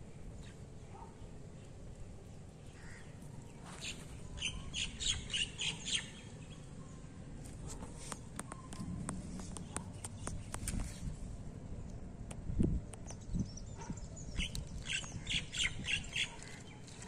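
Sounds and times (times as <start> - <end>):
low outdoor rumble: 0.0 - 17.0
bird chirping high: 3.7 - 6.7, 13.3 - 17.0.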